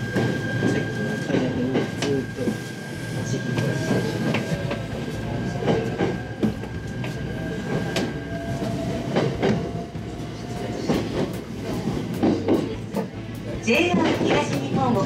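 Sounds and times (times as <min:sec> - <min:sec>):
steady train whine: 0:00.0 - 0:15.0
train wheels clacking over rail joints: 0:10.5 - 0:15.0.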